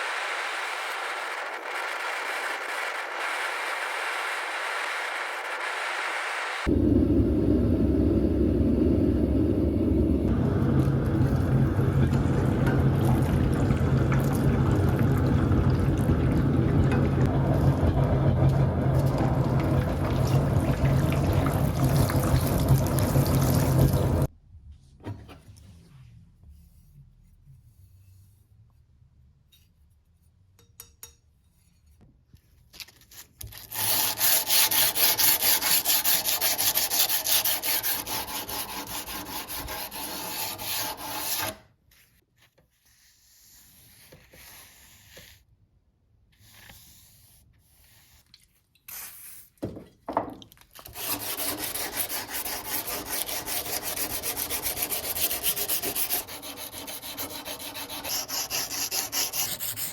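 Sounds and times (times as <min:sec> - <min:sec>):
scattered scrapes: 0:00.0 - 0:06.7
hand sanding strokes: 0:33.7 - 0:41.6, 0:50.9 - 0:59.9.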